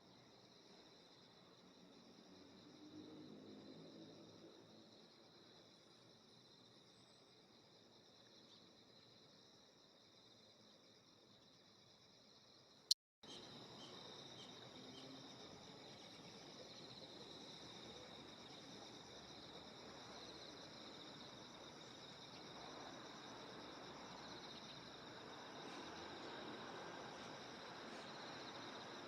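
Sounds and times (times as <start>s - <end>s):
insects trilling: 10.4s - 29.0s.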